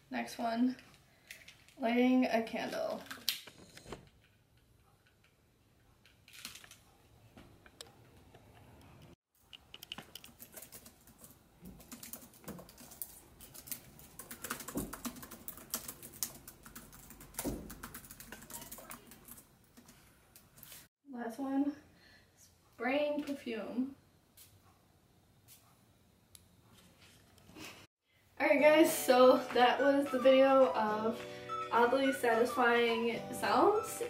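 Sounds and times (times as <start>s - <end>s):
small clicks and scrapes: 7.6s - 14.0s.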